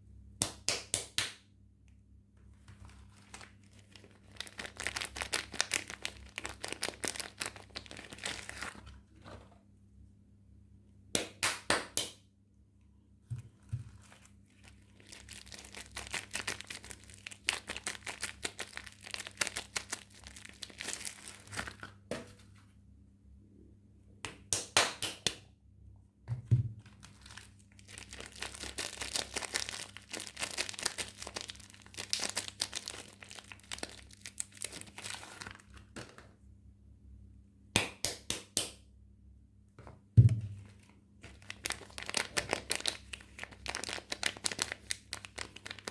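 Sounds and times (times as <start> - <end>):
packaging crinkling and tearing: 2.5 - 9.0, 13.5 - 22.0, 26.8 - 36.2, 40.6 - 45.9.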